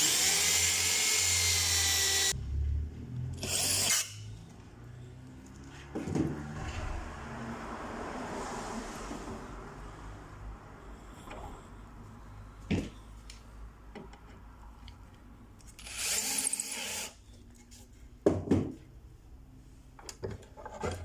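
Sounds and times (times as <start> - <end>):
power drill running: 0.0 - 2.3, 3.4 - 4.2, 15.8 - 17.2.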